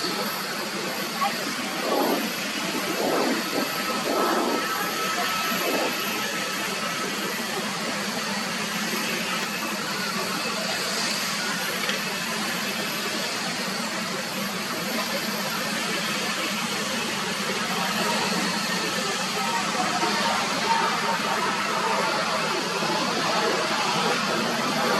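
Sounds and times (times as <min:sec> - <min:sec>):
jet engines rushing: 0:00.0 - 0:24.9.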